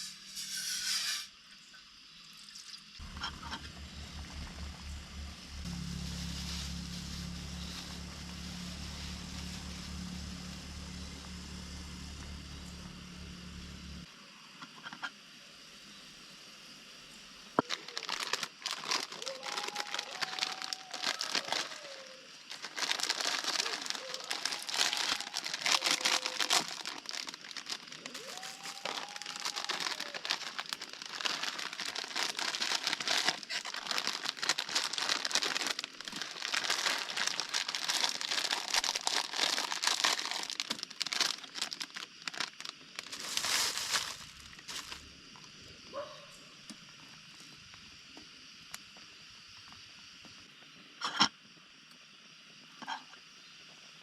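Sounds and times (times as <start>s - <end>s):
crinkling and rustling: 5.6s - 14.1s, 17.6s - 45.6s.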